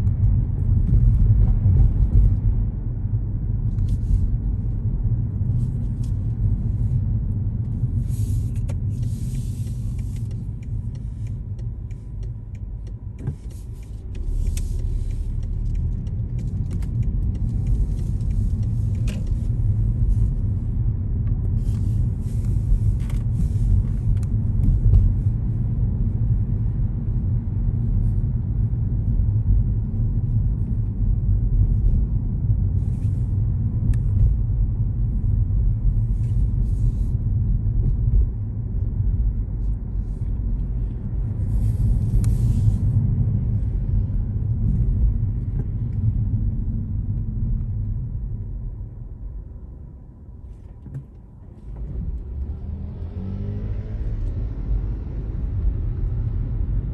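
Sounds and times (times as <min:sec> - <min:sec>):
car driving rumble: 0:00.0 - 0:56.9.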